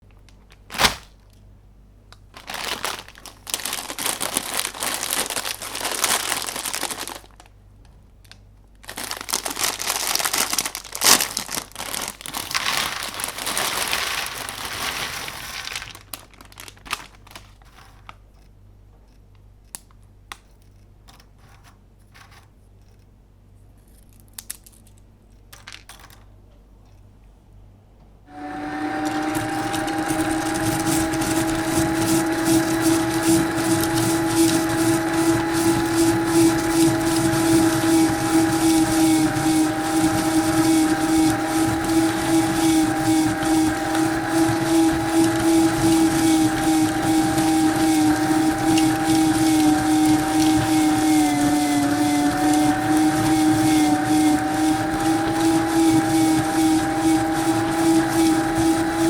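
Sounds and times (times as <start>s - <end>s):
plastic packaging crinkling: 0.0s - 1.4s, 2.1s - 18.3s, 28.8s - 59.0s
meat grinder motor humming: 28.3s - 59.0s.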